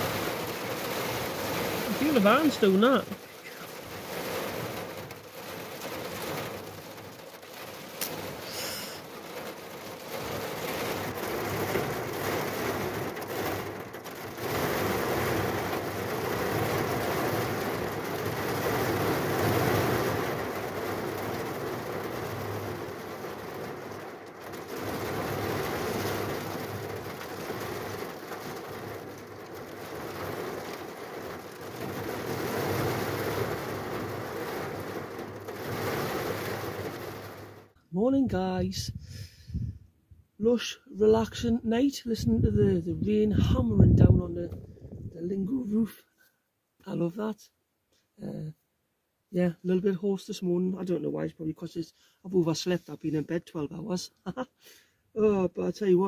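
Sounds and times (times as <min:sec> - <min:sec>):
heavy rain drumming on roof: 0:00.0 - 0:39.6.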